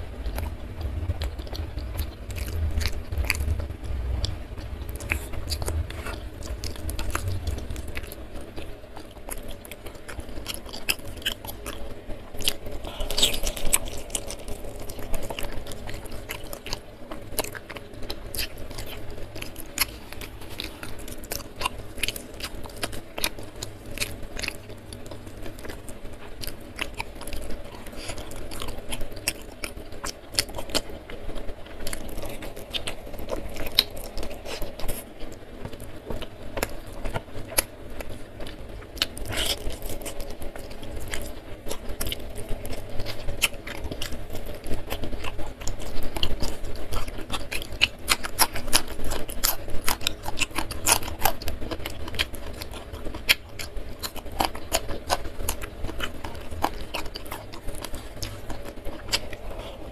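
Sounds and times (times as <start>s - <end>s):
crunchy bites: 31.8s - 59.9s.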